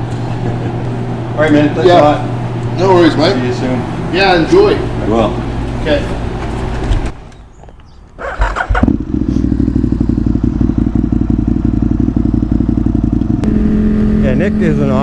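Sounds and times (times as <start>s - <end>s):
motorcycle engine starting and idling: 8.2s - 15.0s.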